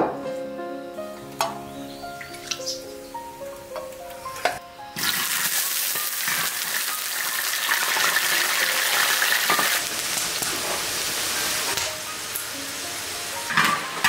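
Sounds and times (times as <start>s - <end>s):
food deep-frying in oil: 5.0s - 14.0s.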